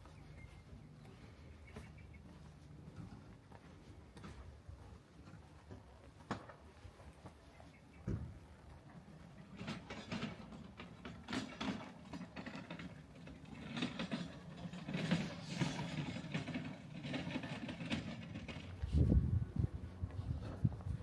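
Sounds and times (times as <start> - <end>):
low vehicle rumble: 12.4 - 21.0.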